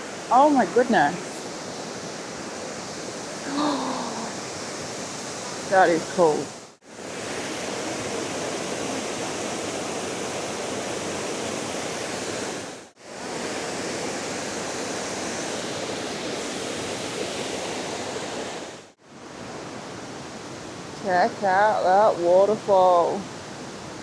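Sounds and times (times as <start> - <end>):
waterfall: 0.0 - 24.0.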